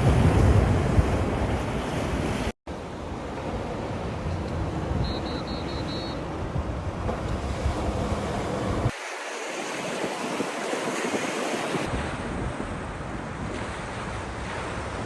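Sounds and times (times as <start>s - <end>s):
wind rumbling on microphone: 0.0s - 2.5s, 3.1s - 9.0s, 9.7s - 15.0s
surf breaking on beach: 0.0s - 2.6s, 6.7s - 15.0s.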